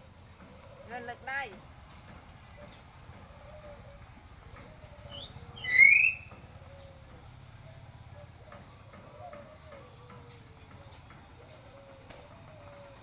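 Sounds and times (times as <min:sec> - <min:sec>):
myna whistling: 0:05.0 - 0:06.4.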